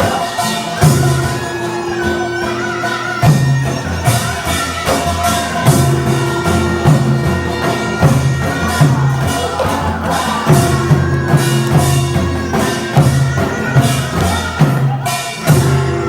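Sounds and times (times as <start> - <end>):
sustained wavering melody: 0.0 - 16.0
deep drum strikes: 5.6 - 16.0.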